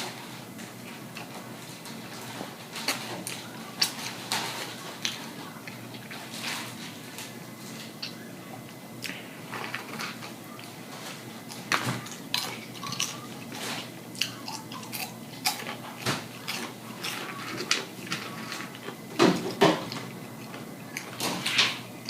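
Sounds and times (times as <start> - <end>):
person chewing and smacking: 7.1 - 10.8, 11.4 - 21.7.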